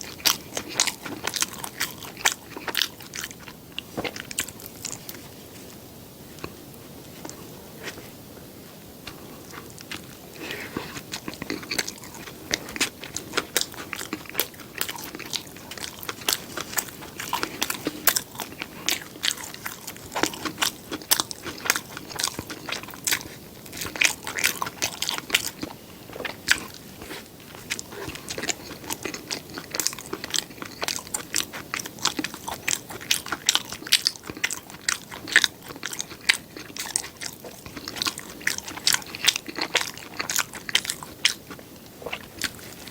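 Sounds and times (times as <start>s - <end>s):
person chewing crunchy food: 0.0s - 42.9s.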